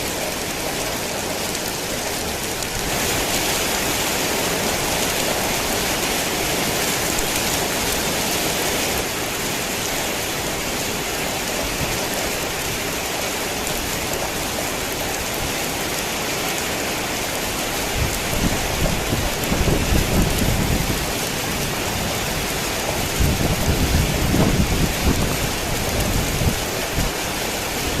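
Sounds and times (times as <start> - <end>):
heavy rain pouring: 0.0 - 28.0
thunder rumbling: 17.9 - 27.2.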